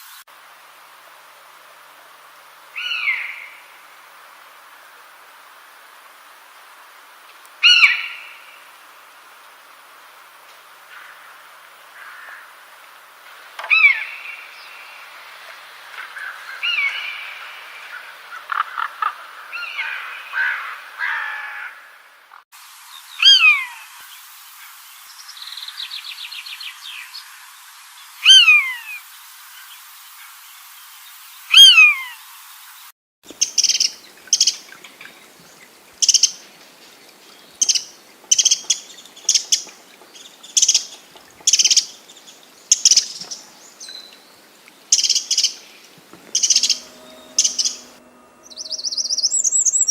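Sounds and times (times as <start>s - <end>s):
birds calling: 2.8s - 3.7s, 7.6s - 8.6s, 28.2s - 29.0s, 33.3s - 49.9s
bird trill: 33.4s - 35.2s, 36.0s - 36.4s, 37.6s - 39.7s, 42.7s - 44.1s, 44.9s - 45.6s, 46.2s - 49.9s
short high bird chirps: 46.2s - 49.9s
whistled bird note sweeping down: 46.2s - 49.9s.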